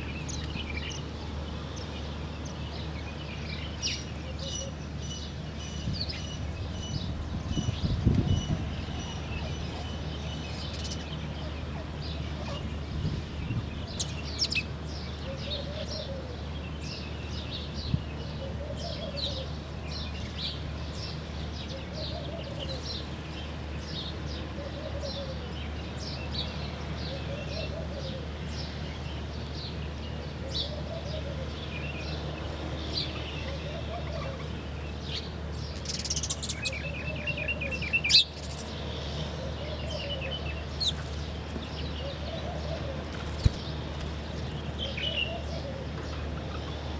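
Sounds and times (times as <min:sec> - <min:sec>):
birds chirping: 0:00.0 - 0:46.9
bird trill: 0:35.8 - 0:38.7.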